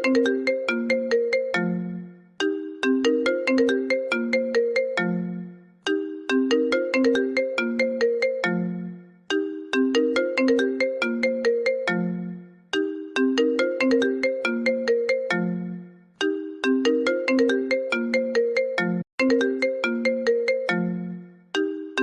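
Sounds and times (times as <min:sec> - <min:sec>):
phone ringtone melody: 0:00.0 - 0:22.0.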